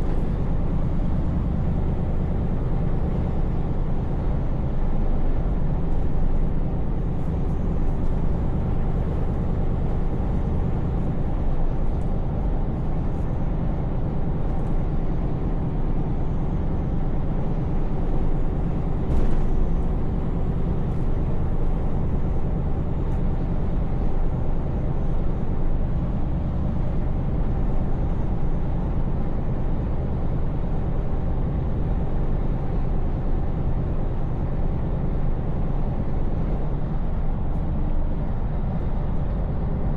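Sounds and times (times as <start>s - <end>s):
road and tyre noise: 0.0s - 39.9s
truck engine hum: 0.0s - 39.9s.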